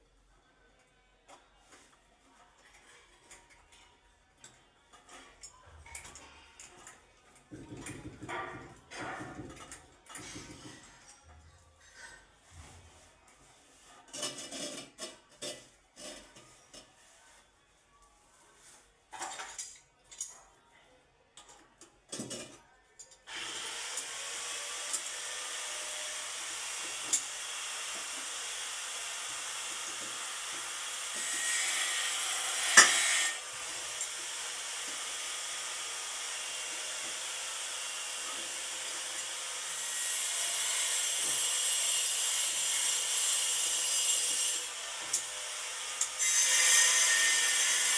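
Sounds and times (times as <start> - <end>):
hand tool scraping: 29.6 - 34.2.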